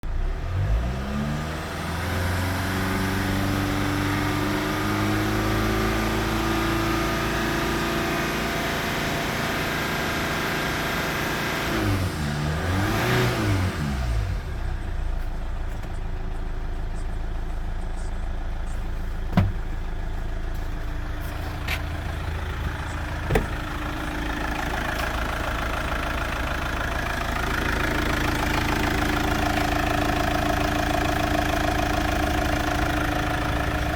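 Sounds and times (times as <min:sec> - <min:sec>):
engine running and revving: 0:00.0 - 0:33.9
sharp knocks: 0:19.3 - 0:19.7, 0:23.3 - 0:23.7.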